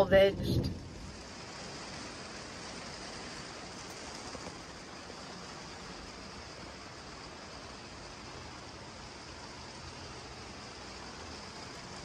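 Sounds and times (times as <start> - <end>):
rain pouring: 0.0 - 12.0.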